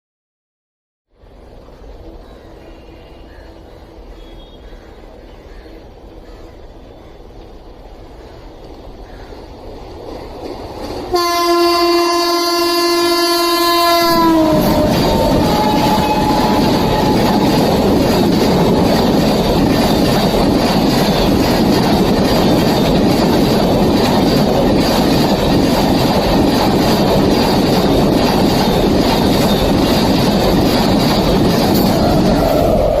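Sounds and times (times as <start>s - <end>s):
train passing at speed: 1.2s - 33.0s
train horn: 11.1s - 17.8s.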